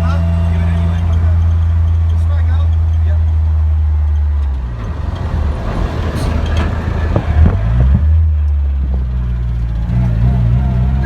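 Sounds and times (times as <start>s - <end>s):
car engine running: 0.0s - 11.0s
sharp knocks and rattles: 0.7s - 10.2s.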